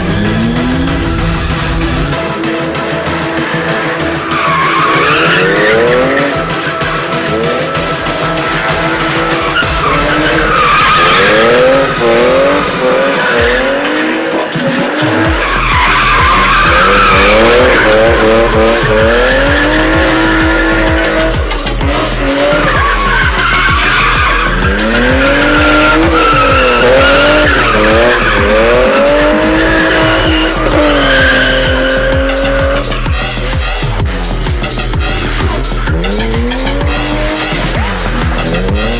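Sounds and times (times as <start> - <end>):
car engine revving: 0.0 - 38.9
music with steady beat: 0.0 - 38.9
tyres squealing: 3.6 - 34.0.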